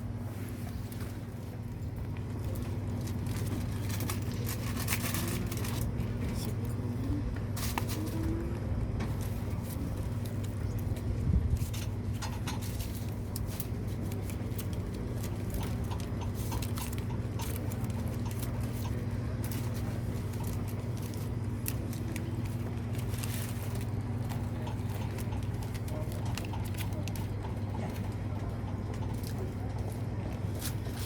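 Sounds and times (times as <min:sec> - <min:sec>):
steady low hum: 0:00.0 - 0:31.0
small clicks and clatters: 0:09.0 - 0:31.0.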